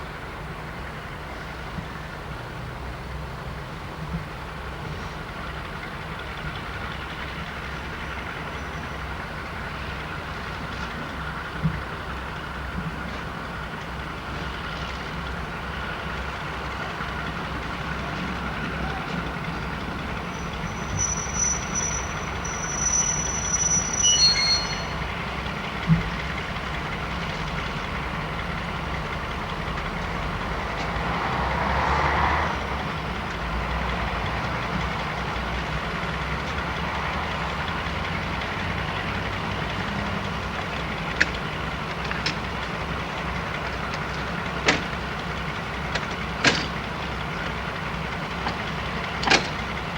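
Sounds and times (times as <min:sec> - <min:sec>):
diesel train engine rumbling: 0:00.0 - 0:49.9
high squeal: 0:20.3 - 0:25.3.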